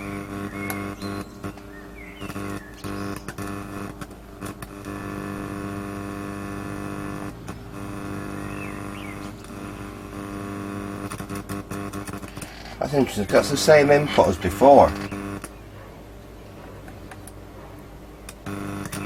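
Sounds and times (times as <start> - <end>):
buzzy mains hum from speaker: 0.0 - 19.0
short clicks: 0.3 - 5.9, 18.2 - 19.0.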